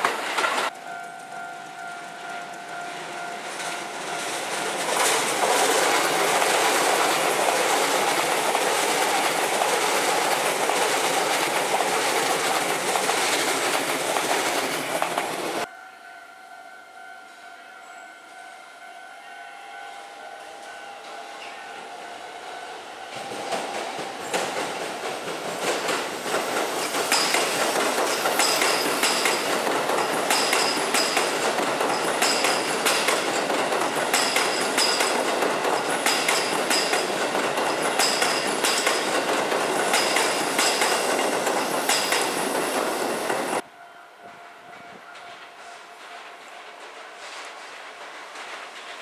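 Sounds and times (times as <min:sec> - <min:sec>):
wheels clicking over rail joints: 0:00.0 - 0:15.7, 0:23.2 - 0:43.6
electric train passing: 0:00.0 - 0:49.0.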